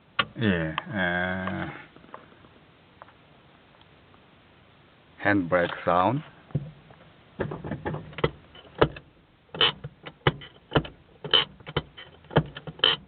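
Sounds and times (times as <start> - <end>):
handbrake ratchet clicking: 7.4 - 13.0.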